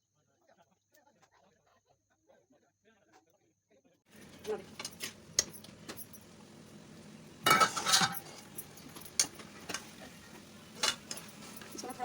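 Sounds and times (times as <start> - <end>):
metal spoon scraping a cooking pan: 4.2 - 12.0.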